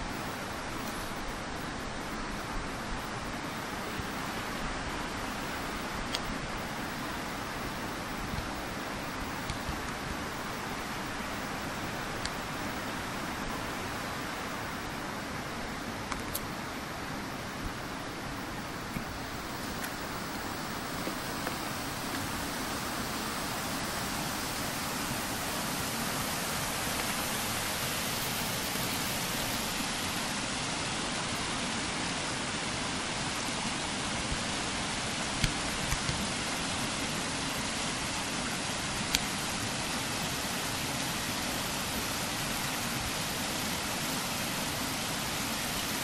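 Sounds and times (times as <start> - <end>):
stream water rushing: 0.0 - 46.0.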